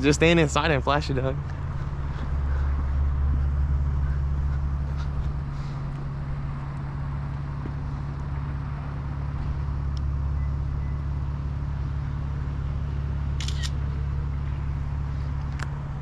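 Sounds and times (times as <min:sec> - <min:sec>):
car engine idling: 0:00.0 - 0:16.0
camera shutter clicks: 0:13.4 - 0:13.8.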